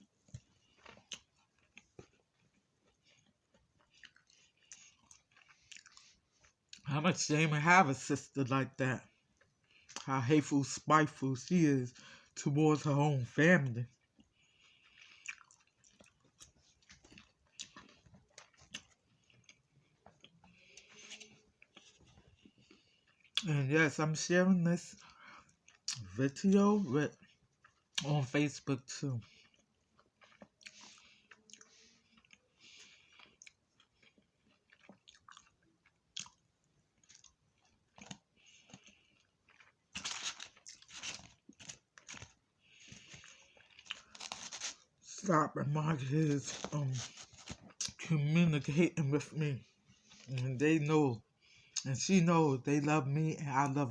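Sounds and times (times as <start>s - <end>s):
chewing with wet mouth clicks: 0.3s - 6.9s, 9.1s - 10.1s, 13.9s - 23.5s, 24.9s - 26.1s, 29.2s - 44.8s.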